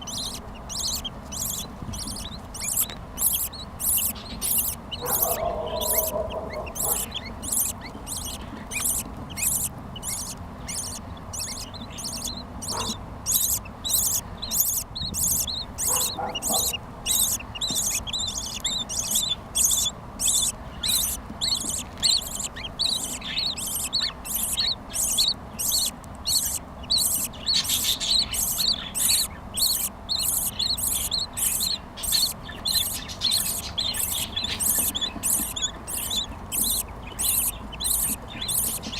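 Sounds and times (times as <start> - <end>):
budgerigars squeaky calls: 0.0 - 38.9.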